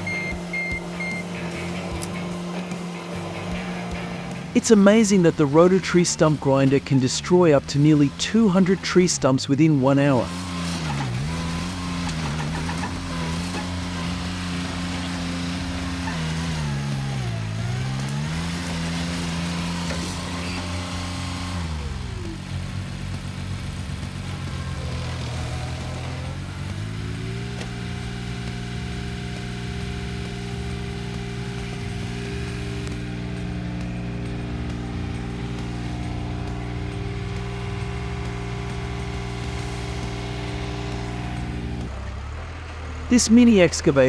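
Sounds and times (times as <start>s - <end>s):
machine engine running under load: 10.3s - 43.0s.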